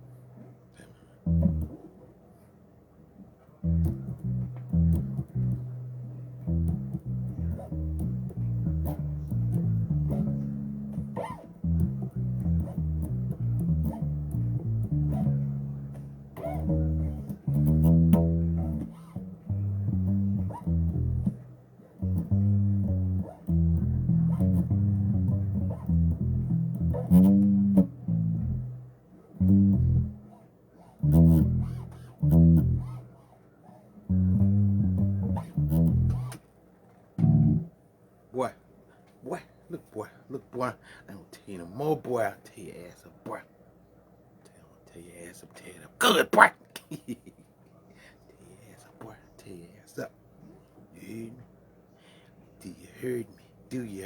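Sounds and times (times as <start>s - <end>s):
electric bass guitar plucked: 1.2s - 1.8s, 3.6s - 30.4s, 31.0s - 33.1s, 34.1s - 36.4s, 37.2s - 37.7s.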